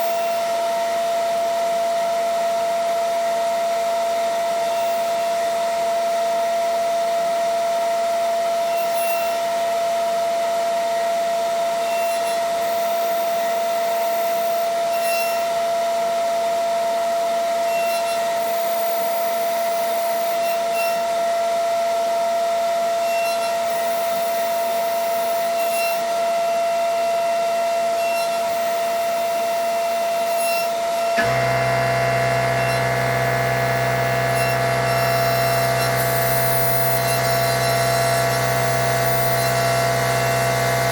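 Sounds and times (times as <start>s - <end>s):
machine spindle whine: 22.9s - 40.9s
deep hum: 31.2s - 40.9s
machine tones: 31.2s - 40.9s.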